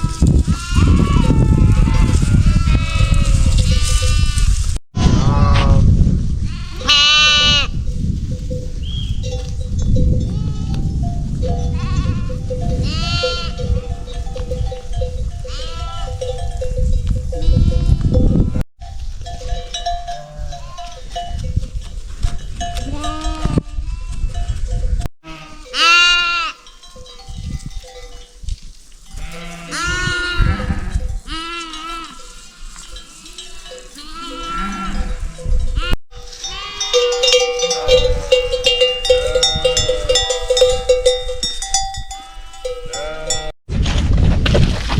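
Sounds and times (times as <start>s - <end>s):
goats or sheep bleating: 0.0s - 7.8s, 10.3s - 10.9s, 11.7s - 14.2s, 15.4s - 16.2s, 17.4s - 18.6s, 20.1s - 21.0s, 22.8s - 24.4s, 25.2s - 26.7s, 29.1s - 40.7s, 42.2s - 43.5s
animal bells ringing: 3.2s - 4.4s, 6.8s - 29.8s, 30.4s - 43.6s.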